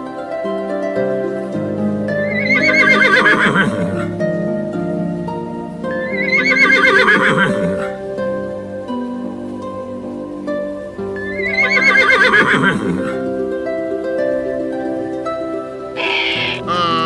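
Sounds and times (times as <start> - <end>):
plucked harp music: 0.0 - 17.0
horse whinnying: 2.3 - 4.1, 6.0 - 7.9, 11.3 - 13.2, 16.0 - 17.0.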